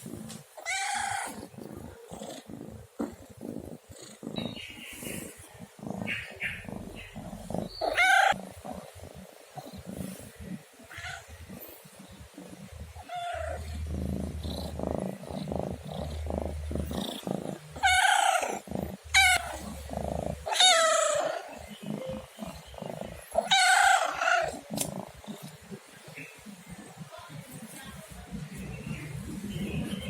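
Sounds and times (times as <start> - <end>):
cat purring: 0.0 - 30.0
cat meowing: 23.4 - 24.6.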